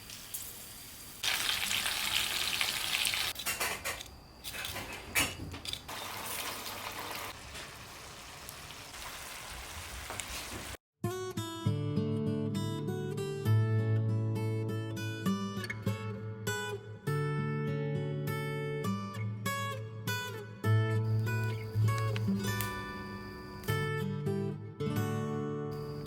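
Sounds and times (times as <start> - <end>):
food sizzling in oil: 0.0 - 3.4, 5.9 - 10.8.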